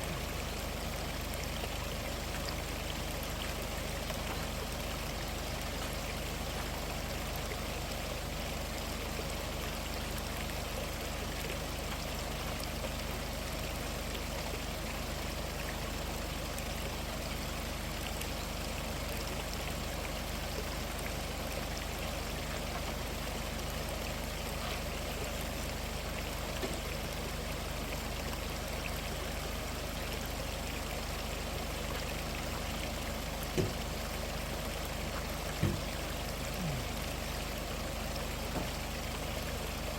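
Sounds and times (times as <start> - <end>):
stream flowing: 0.0 - 39.9
soft knock: 33.6 - 33.8, 35.6 - 35.9.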